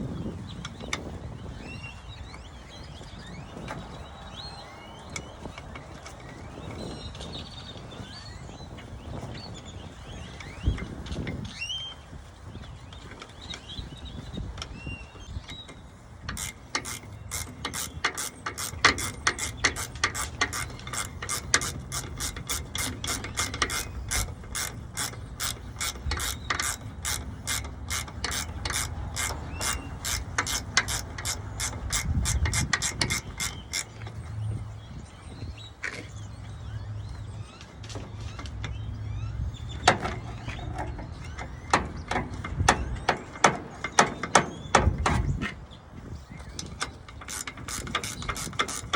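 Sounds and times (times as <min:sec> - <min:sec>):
ratchet wrench clicking: 0:16.2 - 0:34.1, 0:46.6 - 0:48.9.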